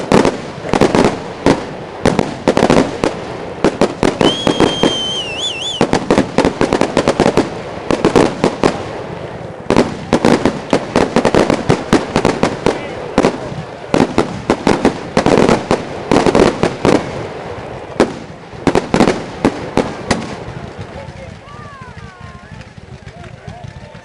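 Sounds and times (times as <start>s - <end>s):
fireworks bangs and crackles: 0.0s - 24.0s
high firework whistle: 4.0s - 6.2s.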